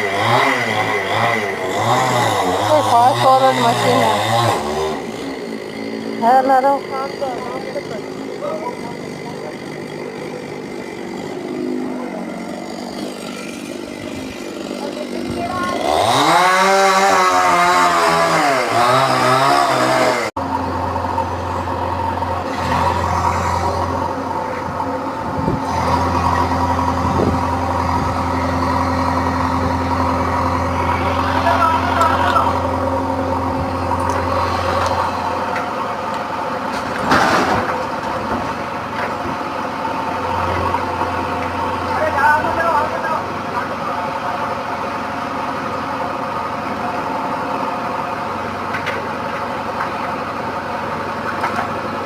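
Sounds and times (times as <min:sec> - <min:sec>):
chainsaw engine revving: 0:00.0 - 0:50.8
low engine drone: 0:20.2 - 0:52.0.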